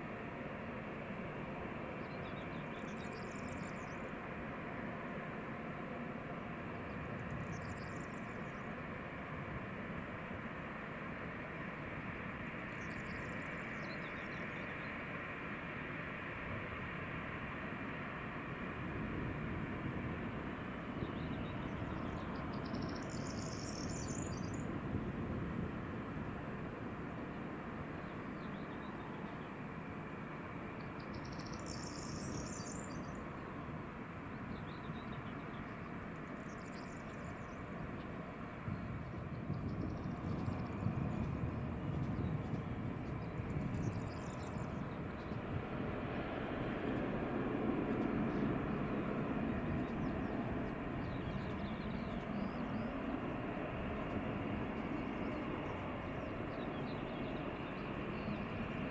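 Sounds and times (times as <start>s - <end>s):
airliner engine rumble: 0.0s - 58.9s
steady rushing noise: 0.0s - 58.9s
songbird chirping and trilling: 2.0s - 4.1s, 7.4s - 8.7s, 12.7s - 15.0s, 21.0s - 24.7s, 30.8s - 33.3s, 34.3s - 38.1s, 39.0s - 45.5s, 51.0s - 53.0s, 54.9s - 58.6s.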